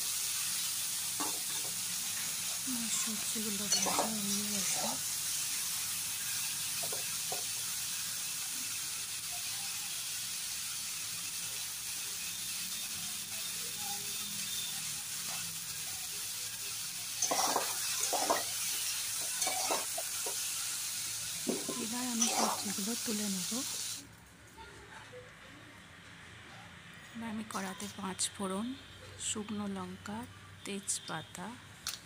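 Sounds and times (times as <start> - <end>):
vegetables sizzling in hot oil: 0.0 - 24.1.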